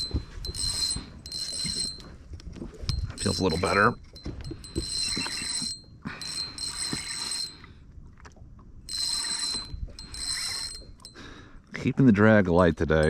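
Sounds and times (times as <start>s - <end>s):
fishing reel whirring: 0.0s - 2.2s, 2.8s - 7.7s, 8.9s - 11.2s.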